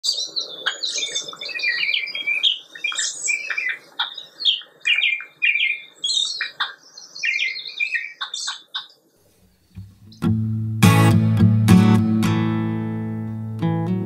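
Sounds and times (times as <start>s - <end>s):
birds chirping: 0.0s - 10.4s.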